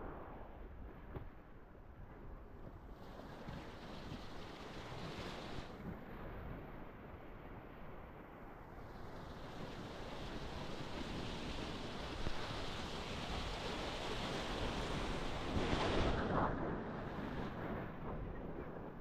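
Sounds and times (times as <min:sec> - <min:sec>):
waves washing onto beach: 0:02.9 - 0:19.0
wind buffeting microphone: 0:08.7 - 0:19.0.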